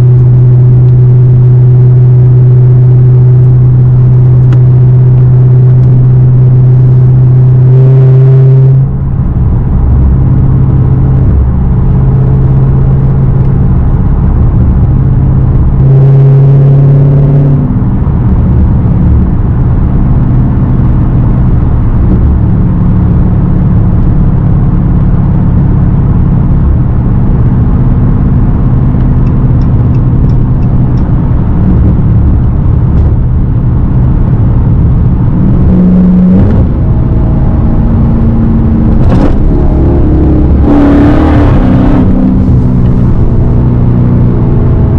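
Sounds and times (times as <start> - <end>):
loud rumbling car exhaust: 0.0 - 44.9.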